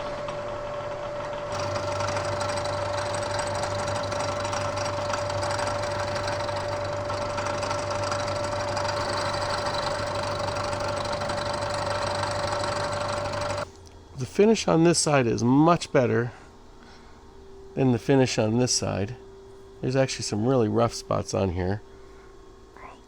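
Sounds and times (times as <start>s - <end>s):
milling machine whining: 0.0s - 13.7s.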